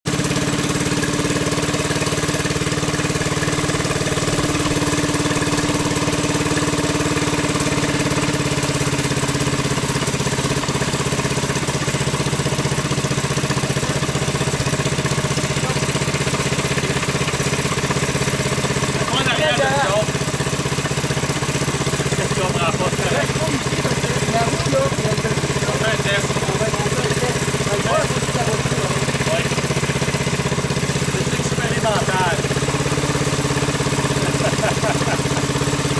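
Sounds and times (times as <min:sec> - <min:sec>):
engine running steadily: 0:00.0 - 0:35.9.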